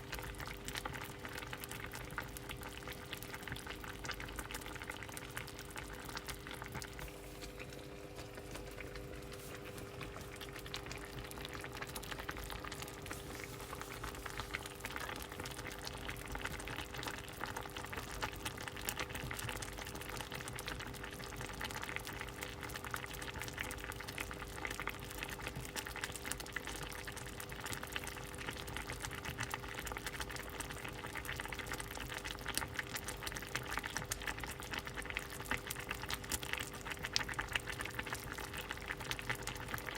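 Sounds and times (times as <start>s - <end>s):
soup bubbles popping: 0.0s - 39.9s
steady low hum: 5.3s - 16.2s.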